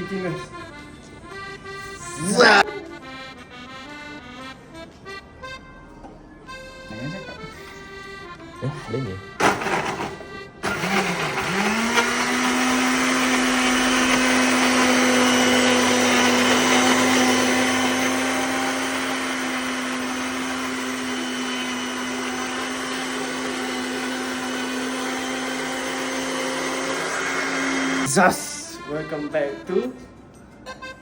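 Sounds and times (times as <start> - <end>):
blender motor running: 9.4 - 28.8.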